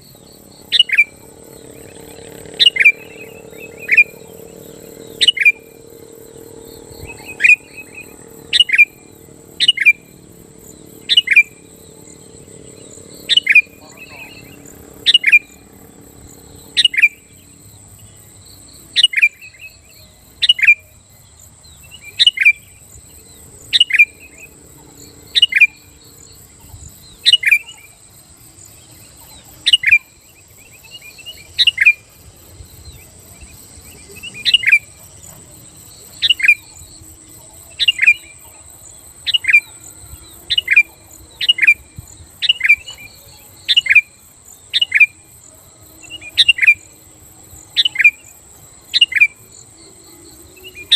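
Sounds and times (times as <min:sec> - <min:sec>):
bulbul chirping: 0:00.6 - 0:17.4.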